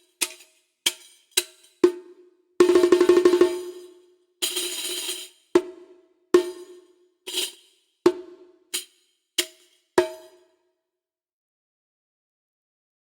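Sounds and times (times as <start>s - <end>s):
jingly tambourine-like hit: 0.0s - 1.9s, 2.7s - 5.7s, 6.4s - 10.4s
percussion strikes ringing: 6.4s - 10.4s.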